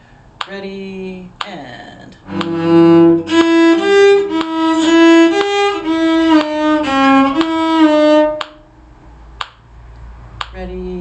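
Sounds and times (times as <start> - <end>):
solo violin playing: 2.2 - 8.6.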